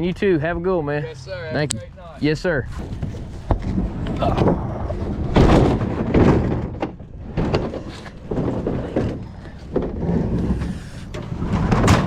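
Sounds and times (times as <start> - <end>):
knocks and clunks: 2.7 - 12.0.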